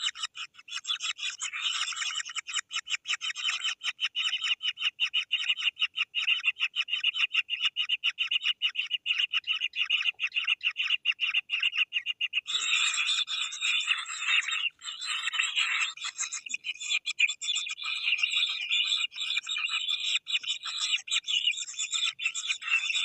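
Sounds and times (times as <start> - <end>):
chicks giving harsh begging calls: 8.8 - 23.0.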